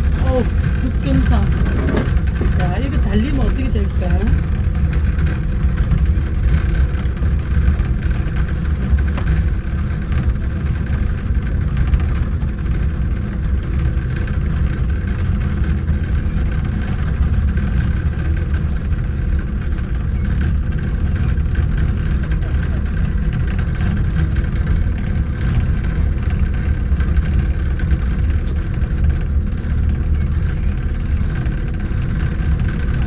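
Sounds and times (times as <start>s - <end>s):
monorail engine rumbling: 0.0s - 33.0s.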